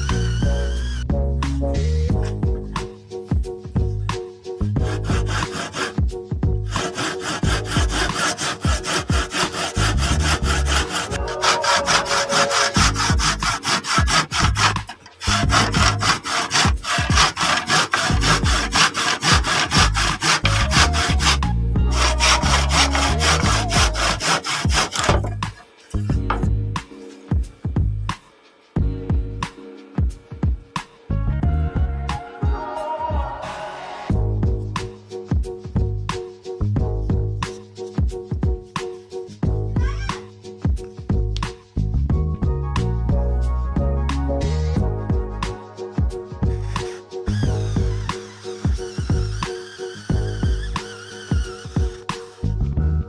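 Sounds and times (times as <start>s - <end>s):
hand saw cutting wood: 0.0s - 1.1s, 4.8s - 6.0s, 6.7s - 25.6s, 46.5s - 52.6s.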